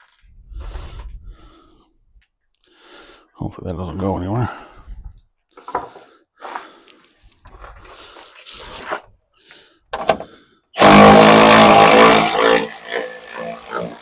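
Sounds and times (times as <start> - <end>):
power driver running: 10.8 - 14.0.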